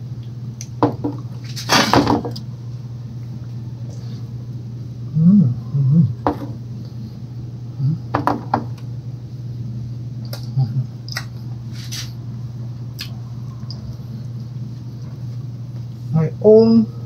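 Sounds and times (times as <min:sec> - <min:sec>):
steady low hum: 0:00.0 - 0:17.0
mouth clicks and smacks: 0:10.2 - 0:11.4, 0:13.0 - 0:13.8
person chewing food: 0:10.2 - 0:12.1, 0:12.9 - 0:16.0.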